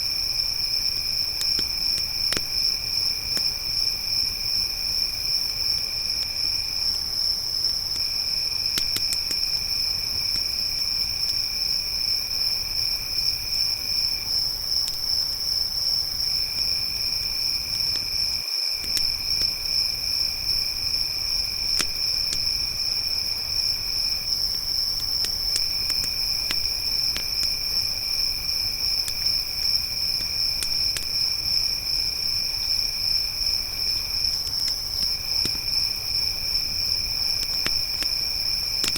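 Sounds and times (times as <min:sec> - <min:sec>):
campfire crackling and popping: 0:00.0 - 0:38.9
crickets chirring: 0:00.0 - 0:38.9
lower-pitched insect trill: 0:00.0 - 0:38.9.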